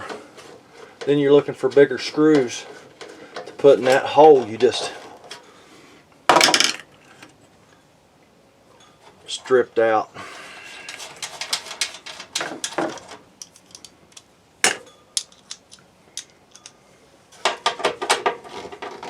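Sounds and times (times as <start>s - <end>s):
metallic clicks of screws and tool: 10.8s - 14.3s, 15.2s - 16.8s.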